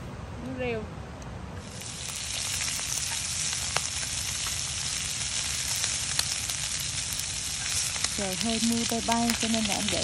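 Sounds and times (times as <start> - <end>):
food sizzling in oil: 1.6 - 10.0.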